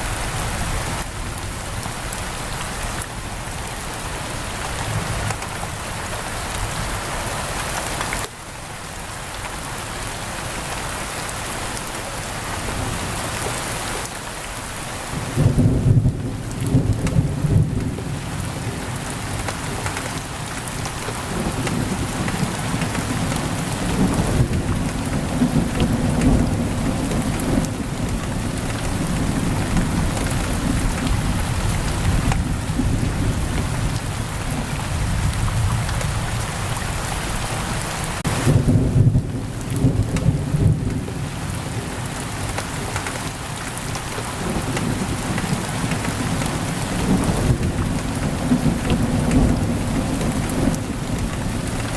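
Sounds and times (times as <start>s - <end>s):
heavy rain on a window: 0.0s - 51.9s
thunder rumbling: 38.2s - 42.0s, 44.0s - 51.9s.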